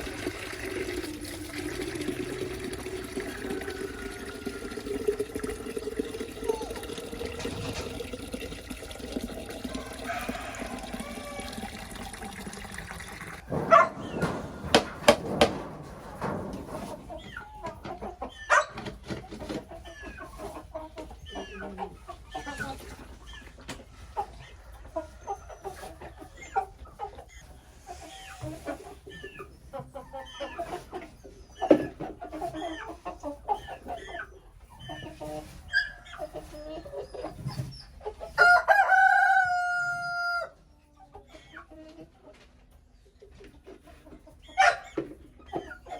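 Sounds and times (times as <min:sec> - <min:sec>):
chickens clucking: 0:00.0 - 0:45.9
sharp knocks: 0:13.4 - 0:17.5.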